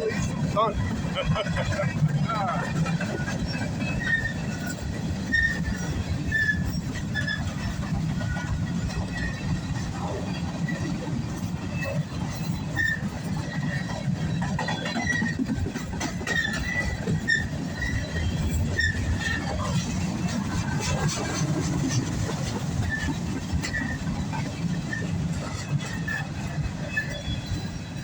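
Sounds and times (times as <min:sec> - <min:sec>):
train wheels rumbling on rails: 0:00.0 - 0:28.0
high wheel squeals: 0:02.7 - 0:09.4, 0:16.2 - 0:20.0, 0:21.4 - 0:28.0.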